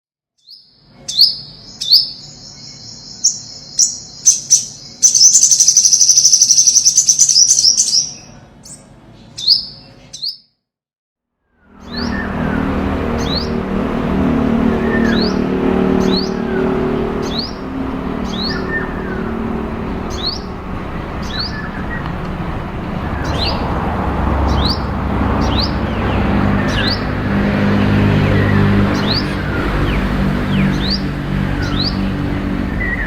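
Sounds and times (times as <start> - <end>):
sunbird calling: 0.4 - 10.4, 14.6 - 23.6
steady low hum: 12.2 - 33.0.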